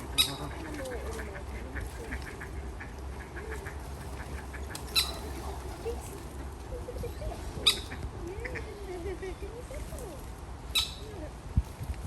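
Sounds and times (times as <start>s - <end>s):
bird squawk: 0.0s - 2.6s, 3.2s - 5.4s, 7.6s - 8.6s, 10.7s - 11.1s
birds chirping: 0.0s - 10.0s, 10.7s - 11.2s.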